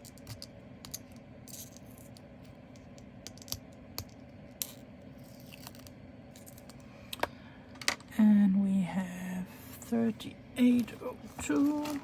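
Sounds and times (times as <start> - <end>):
plastic bag rustle: 10.8 - 12.0.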